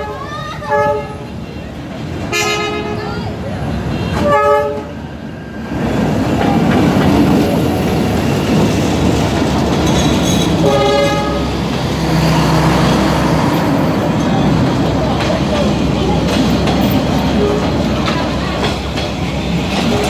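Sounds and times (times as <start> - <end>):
train horn blast: 0.0 - 1.3, 2.3 - 3.1, 4.1 - 5.0, 10.6 - 13.0
coaches rolling along track: 0.0 - 20.0
diesel locomotive passing: 0.0 - 20.0.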